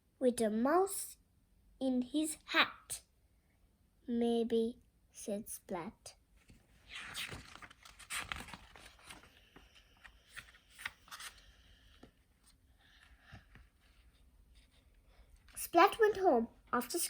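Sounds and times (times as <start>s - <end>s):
paper rustling: 6.4s - 15.6s
book page clicks: 9.9s - 11.4s.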